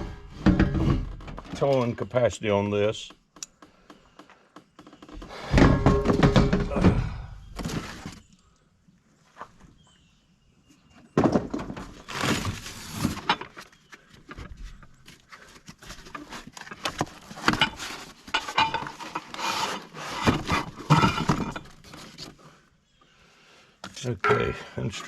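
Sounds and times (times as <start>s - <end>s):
knocks and clicks of parts: 3.1s - 6.9s
cardboard packaging rustling: 11.8s - 20.9s.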